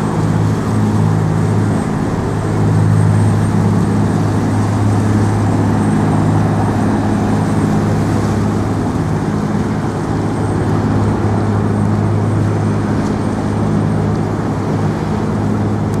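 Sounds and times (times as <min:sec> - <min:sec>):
city traffic noise: 0:00.0 - 0:16.0
loud low engine hum: 0:00.0 - 0:16.0.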